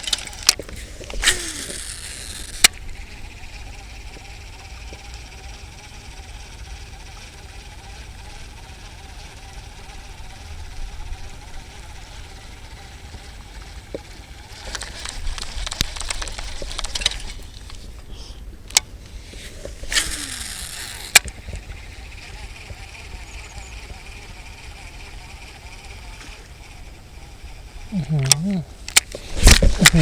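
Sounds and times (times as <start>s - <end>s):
sharp clicks: 0.0s - 3.1s, 13.2s - 24.0s, 28.1s - 30.0s
microphone handling rustle: 14.6s - 21.9s, 28.2s - 30.0s.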